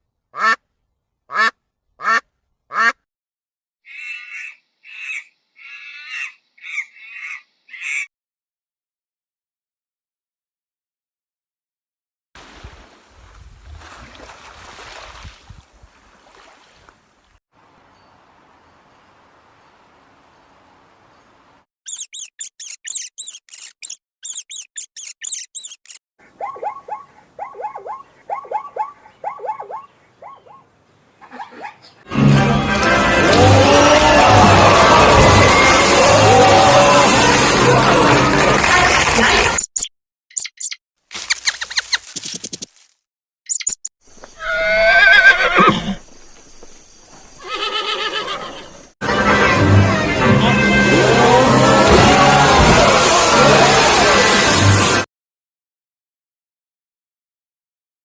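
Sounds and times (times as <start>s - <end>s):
falling animal chirps: 21.9s - 27.0s, 39.6s - 42.8s, 43.5s - 45.7s
high-pitched animal squeaks: 21.9s - 30.6s, 39.6s - 42.3s, 43.5s - 45.7s.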